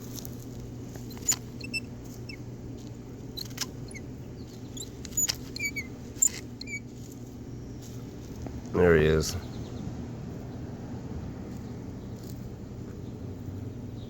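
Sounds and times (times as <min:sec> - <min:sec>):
steady low hum: 0:00.0 - 0:14.0
high squeaky chirps: 0:01.0 - 0:02.5, 0:03.3 - 0:06.9.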